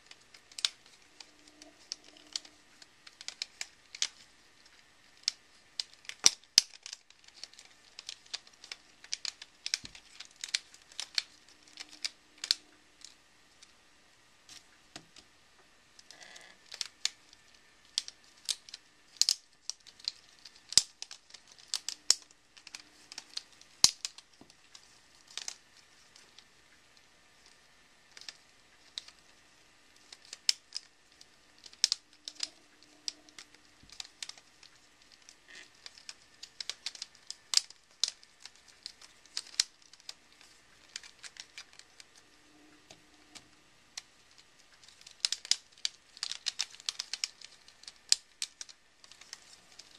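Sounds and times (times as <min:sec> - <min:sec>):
plastic puzzle segments clicking: 0:00.0 - 0:13.7, 0:16.0 - 0:26.5, 0:27.4 - 0:49.9.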